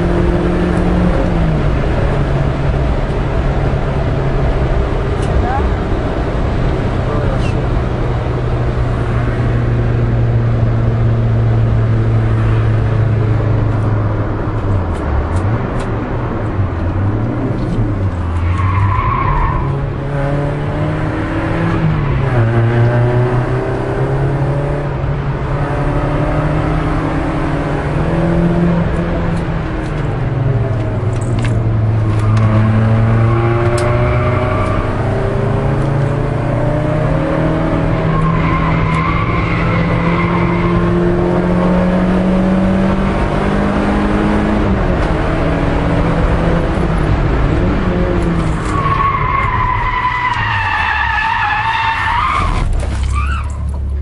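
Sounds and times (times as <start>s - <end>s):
car engine at high revs: 0.0s - 54.0s
tyres squealing: 48.7s - 53.7s.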